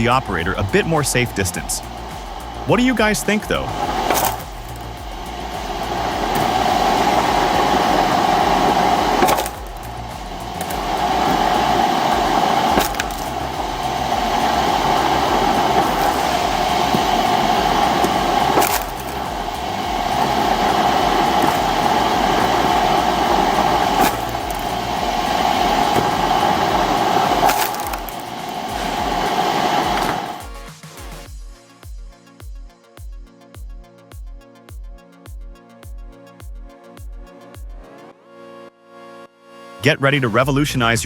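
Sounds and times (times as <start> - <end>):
log splitter motor whining: 0.0 - 30.5
wood cracking and splitting: 3.1 - 4.9, 6.2 - 30.3.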